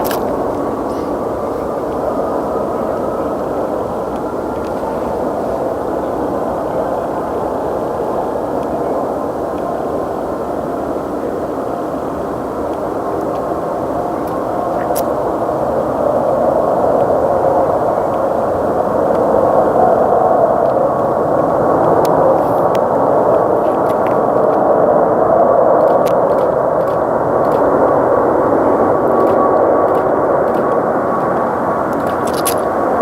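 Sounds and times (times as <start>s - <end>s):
jet engines running: 0.0s - 33.0s.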